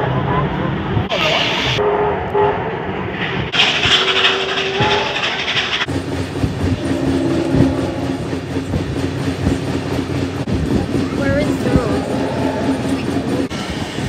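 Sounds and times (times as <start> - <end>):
train wheels clicking over rail joints: 3.1 - 14.0
loud hissing rush: 10.0 - 14.0.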